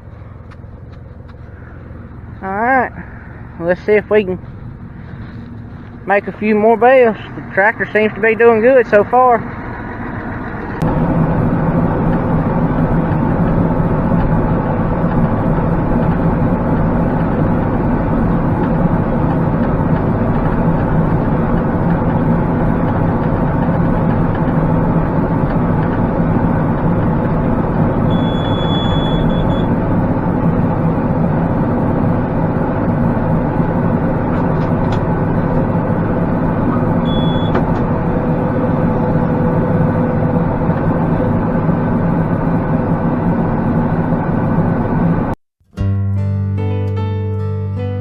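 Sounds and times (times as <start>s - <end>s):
tractor diesel engine running: 0.0s - 45.4s
high electronic beep: 28.1s - 29.7s, 37.0s - 37.6s.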